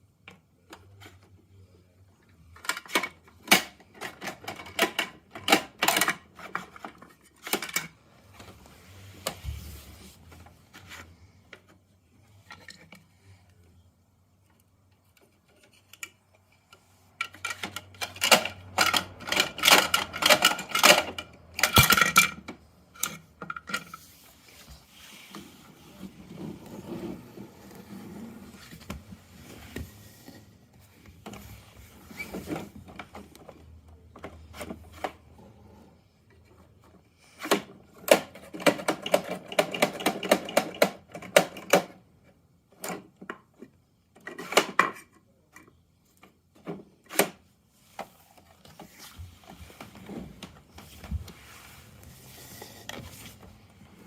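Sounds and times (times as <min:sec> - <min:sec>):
plastic toy clicking and rattling: 0:02.6 - 0:07.9, 0:17.2 - 0:23.9, 0:37.4 - 0:42.0
toy scraping and rolling: 0:15.2 - 0:33.2, 0:47.9 - 0:54.0.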